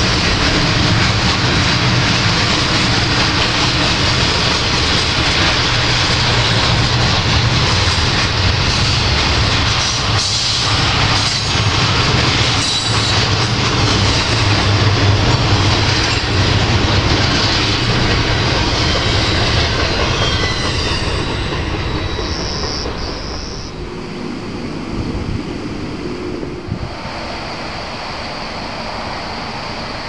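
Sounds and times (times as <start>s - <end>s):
freight train rumbling past: 0.0s - 30.0s.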